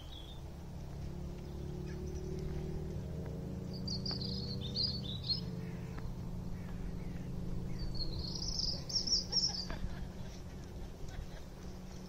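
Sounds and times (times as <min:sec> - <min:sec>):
songbird twittering: 0:00.0 - 0:00.5, 0:01.2 - 0:09.9
steady low hum: 0:00.0 - 0:12.0.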